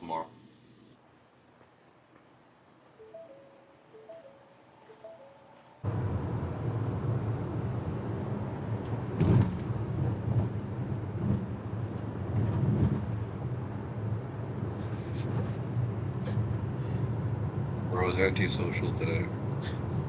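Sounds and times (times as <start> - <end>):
car cabin road rumble: 5.8 - 20.0
brief hiss: 14.8 - 15.6.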